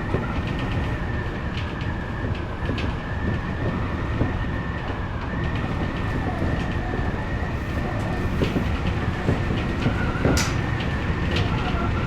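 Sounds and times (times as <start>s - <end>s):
electric train rumble: 0.0s - 12.0s
rail clicks: 0.0s - 12.0s.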